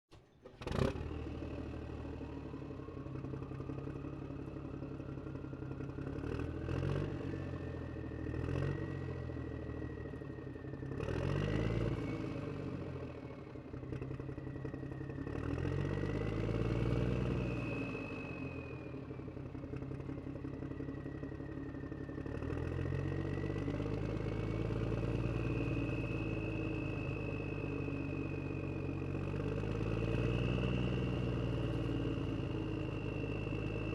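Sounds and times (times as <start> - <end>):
clatter: 13.5 - 33.9.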